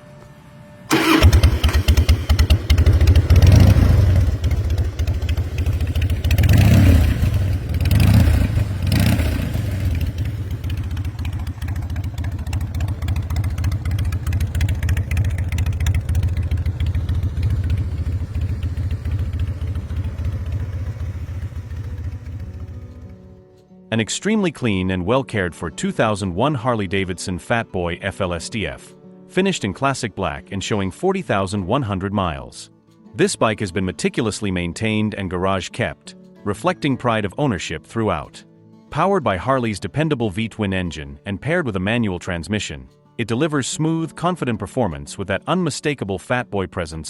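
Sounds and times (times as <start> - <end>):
motorcycle engine revving and idling: 0.9 - 23.4.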